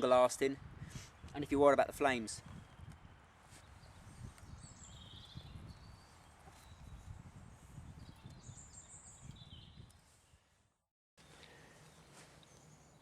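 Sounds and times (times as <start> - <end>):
distant bird chirps: 2.5 - 7.2, 7.9 - 10.4.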